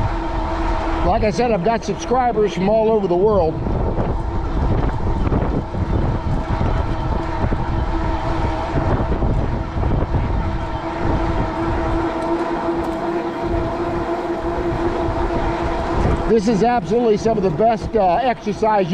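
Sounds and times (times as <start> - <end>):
e-bike motor whining hum: 0.0 - 18.9
wind buffeting microphone: 0.0 - 18.9.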